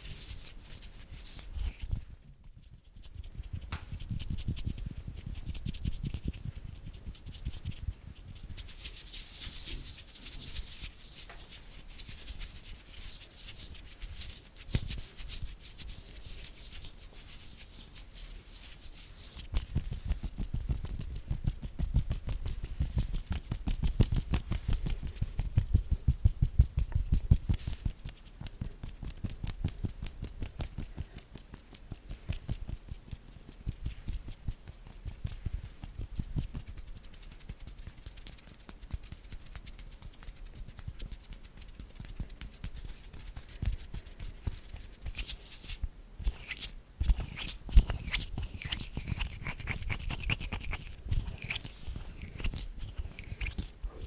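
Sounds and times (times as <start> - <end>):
hands rubbing together: 0.0 - 54.0
finger tapping and patting: 19.4 - 45.3.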